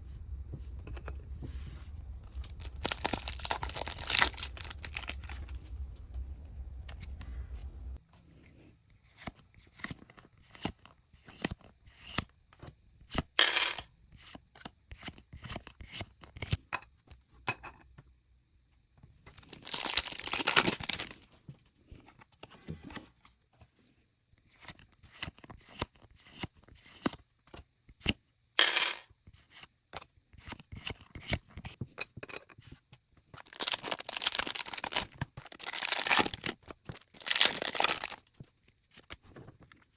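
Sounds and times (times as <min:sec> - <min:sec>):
foil wrapper crinkling and tearing: 0:02.4 - 0:05.5, 0:19.4 - 0:21.3, 0:33.4 - 0:38.3.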